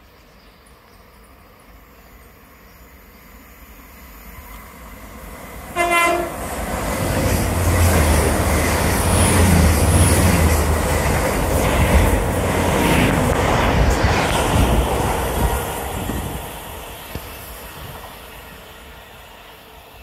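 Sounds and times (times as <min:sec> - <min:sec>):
train running past: 0:00.3 - 0:20.0
train horn blast: 0:05.7 - 0:06.5.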